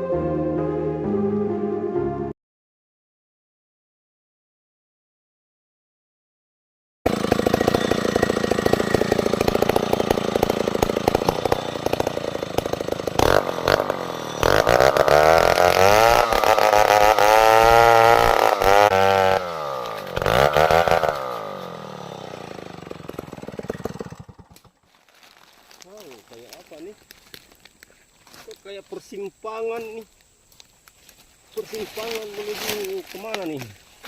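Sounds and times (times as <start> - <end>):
small petrol engine revving: 7.1 - 24.8.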